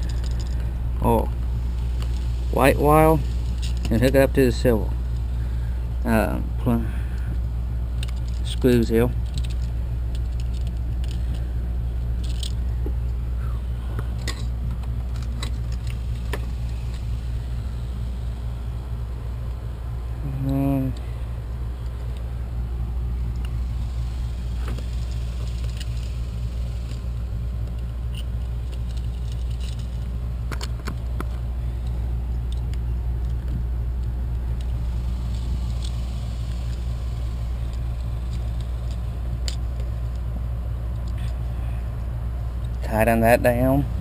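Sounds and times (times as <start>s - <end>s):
steady low rumble: 0.0s - 44.0s
wires clicking on screws: 8.0s - 11.5s, 12.2s - 12.6s, 23.3s - 40.2s.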